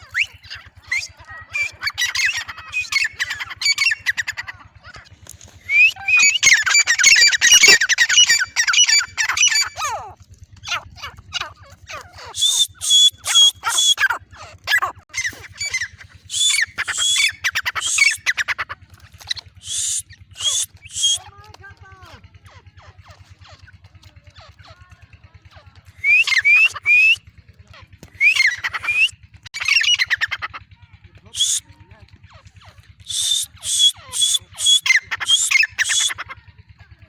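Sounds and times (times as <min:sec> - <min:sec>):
bird calling shrill repeated notes: 0:00.0 - 0:21.3, 0:26.0 - 0:27.2, 0:28.2 - 0:30.6, 0:31.3 - 0:31.7, 0:33.0 - 0:36.4.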